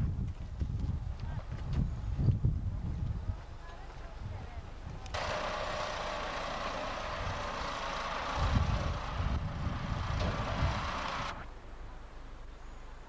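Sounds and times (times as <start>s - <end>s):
heavy machinery hissing: 5.2s - 11.4s.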